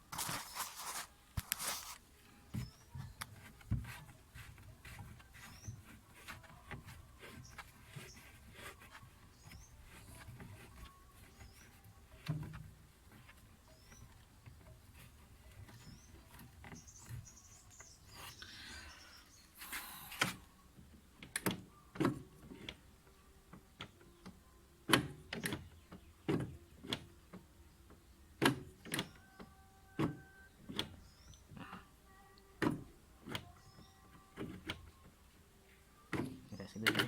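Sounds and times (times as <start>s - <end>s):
scraping rustle: 0.0s - 20.4s.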